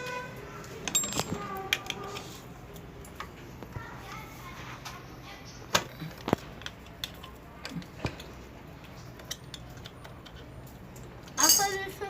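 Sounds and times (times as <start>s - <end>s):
metallic clinks and taps: 0.8s - 2.2s.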